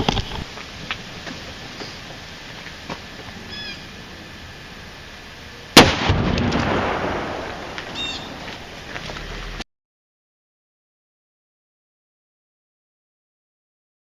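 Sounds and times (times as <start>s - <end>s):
loud revolver shot with echo: 5.8s - 8.4s.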